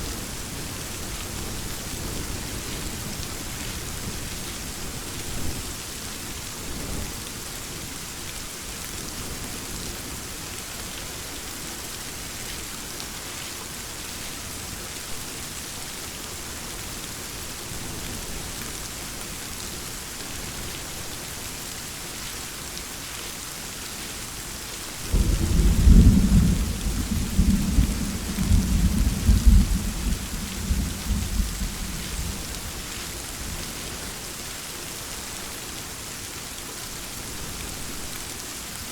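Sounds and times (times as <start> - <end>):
steady rainfall: 0.0 - 38.9
thunder rolling: 25.2 - 32.4.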